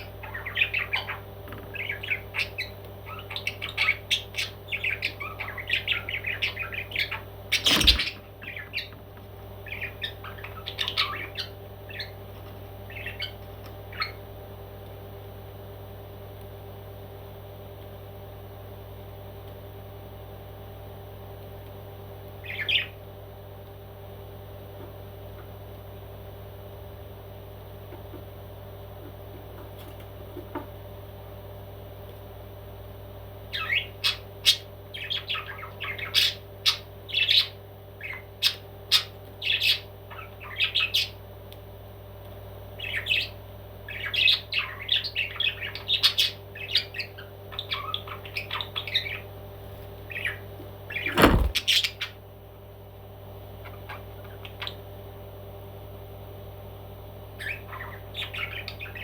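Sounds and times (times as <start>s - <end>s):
parrot squawking and chirping: 0.0s - 8.9s, 9.6s - 12.2s, 12.9s - 14.2s, 22.4s - 23.0s, 33.5s - 41.2s, 42.8s - 49.3s, 50.1s - 52.2s, 57.4s - 59.0s
steady low hum: 0.0s - 59.0s
loud thump: 51.1s - 51.6s.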